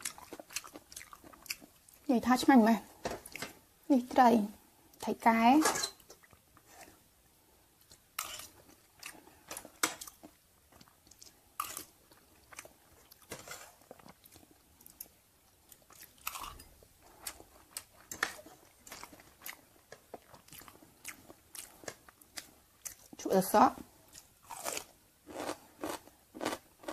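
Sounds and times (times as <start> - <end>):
person chewing food: 0.0 - 2.1, 6.0 - 7.0, 7.7 - 23.2, 24.0 - 26.9.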